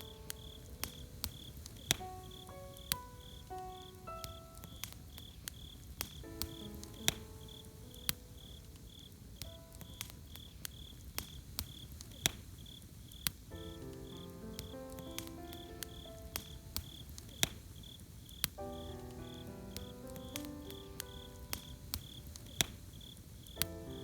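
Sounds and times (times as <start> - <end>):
soft melodic notes: 0.0 - 5.5, 18.6 - 22.4
campfire crackling and popping: 0.0 - 24.0
cricket chirping: 0.0 - 24.0.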